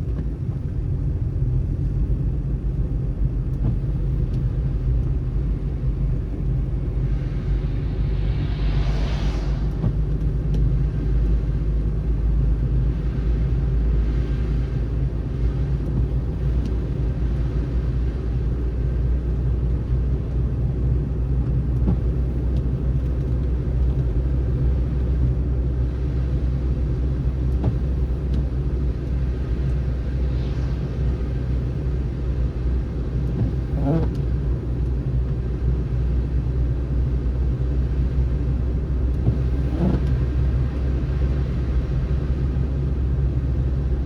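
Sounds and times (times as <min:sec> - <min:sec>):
car engine and tyre rumble: 0:00.0 - 0:44.0
tyre hiss on snow: 0:07.1 - 0:10.2.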